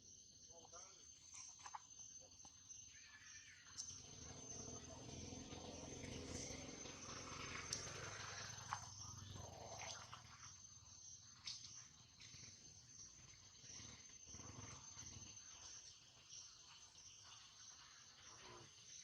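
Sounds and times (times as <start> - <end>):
high-pitched insect trill: 0.0 - 19.0.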